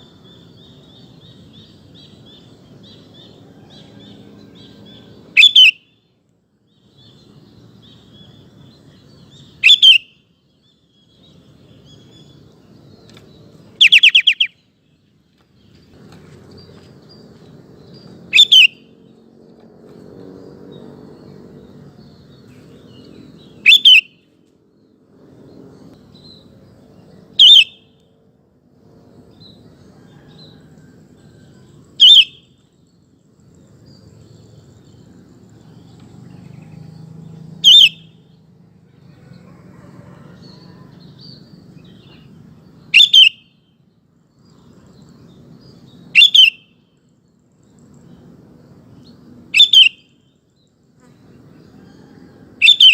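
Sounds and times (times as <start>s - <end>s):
bird calls: 0.0s - 5.9s, 6.8s - 19.2s, 22.0s - 24.3s, 27.2s - 28.0s, 29.4s - 32.6s, 33.6s - 38.4s, 39.0s - 43.5s, 45.7s - 46.6s, 49.0s - 50.2s, 51.0s - 52.9s.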